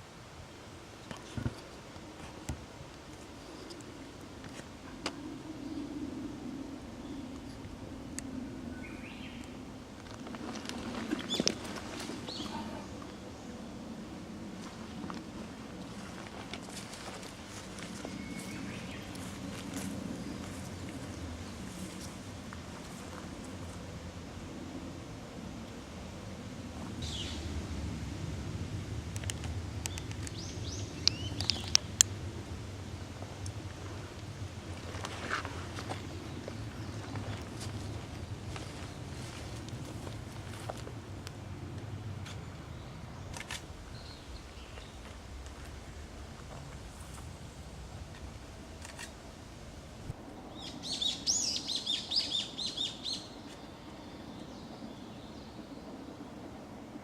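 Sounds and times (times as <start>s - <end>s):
low rumble: 5.2s - 50.6s
sharp clicks: 29.1s - 30.4s
songbird chirping: 29.8s - 31.9s, 50.4s - 55.7s.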